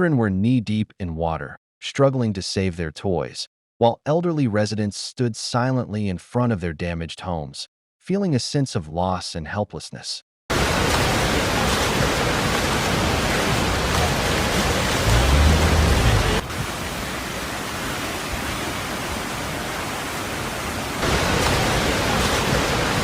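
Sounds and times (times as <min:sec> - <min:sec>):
rushing floodwater and rain: 0:10.5 - 0:23.0
low rumble: 0:14.9 - 0:16.4.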